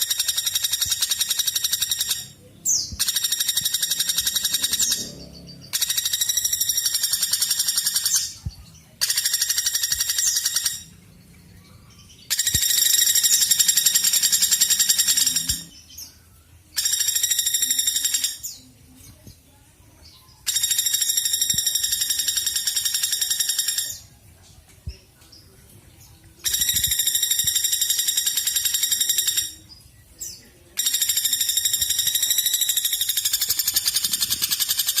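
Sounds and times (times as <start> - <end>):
woodpecker trilling: 0.0 - 8.4, 9.0 - 11.0, 12.2 - 15.7, 16.8 - 18.5, 20.5 - 24.1, 26.4 - 29.6, 30.8 - 35.0.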